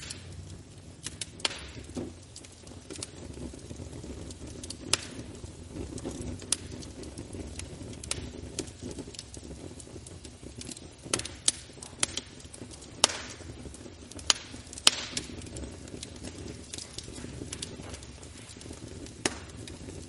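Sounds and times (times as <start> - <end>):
fire crackling and popping: 0.0 - 20.0
fire rushing: 0.0 - 20.0.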